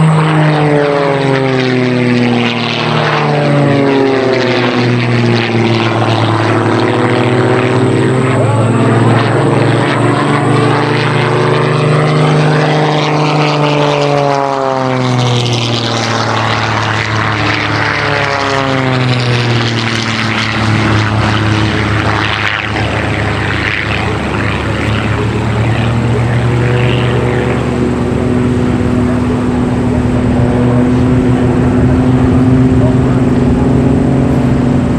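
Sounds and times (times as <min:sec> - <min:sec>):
propeller plane engines droning: 0:00.0 - 0:34.9.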